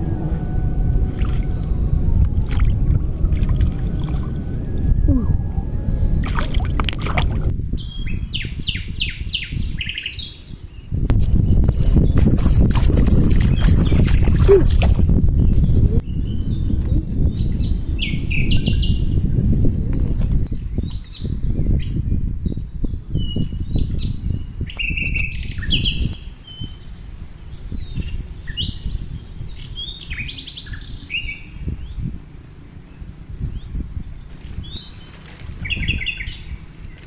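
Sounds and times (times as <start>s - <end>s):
low rumbling noise: 0.0s - 9.8s, 11.0s - 24.5s
birds chirping and whistling: 0.0s - 32.1s, 32.9s - 37.0s.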